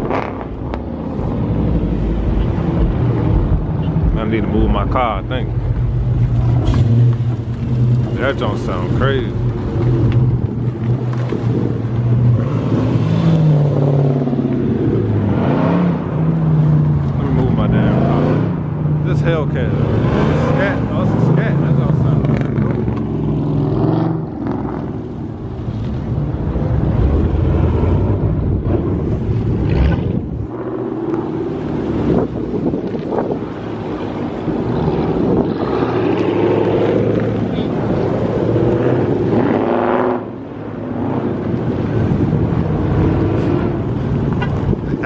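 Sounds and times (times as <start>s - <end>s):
wind buffeting microphone: 0.0s - 13.0s, 21.8s - 39.3s, 41.1s - 45.0s.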